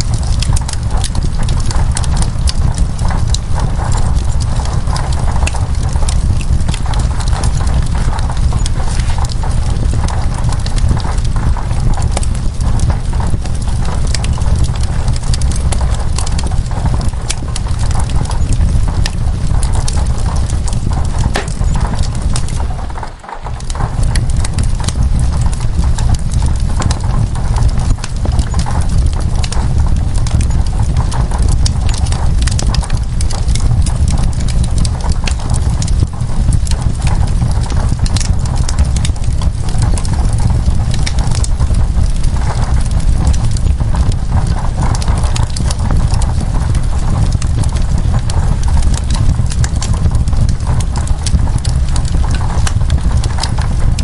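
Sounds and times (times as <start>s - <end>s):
low rumble: 0.0s - 38.2s
steady rain: 0.0s - 54.0s
wood fire crackling: 0.0s - 54.0s.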